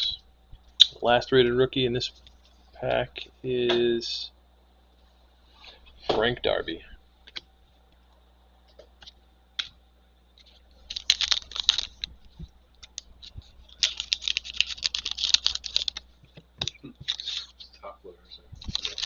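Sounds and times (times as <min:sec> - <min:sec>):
plastic packaging crinkling: 0:10.4 - 0:17.7, 0:18.6 - 0:19.0.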